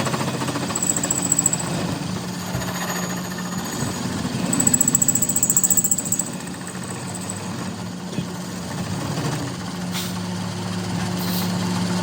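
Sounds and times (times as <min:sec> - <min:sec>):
power tool hammering: 0:00.2 - 0:07.9.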